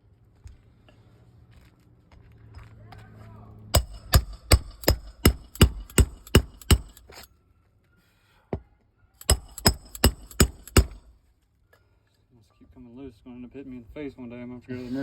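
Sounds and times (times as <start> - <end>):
hammer striking metal tool: 3.8 - 7.3, 9.2 - 11.1.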